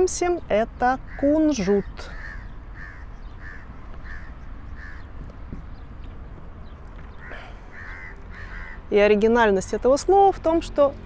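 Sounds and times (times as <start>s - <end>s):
low background rumble: 0.0s - 11.0s
bird calling: 0.8s - 8.9s.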